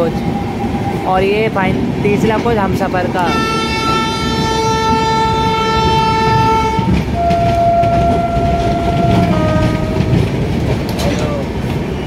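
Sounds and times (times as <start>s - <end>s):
trains rumbling on rails: 0.0s - 12.0s
train horn: 3.3s - 10.2s.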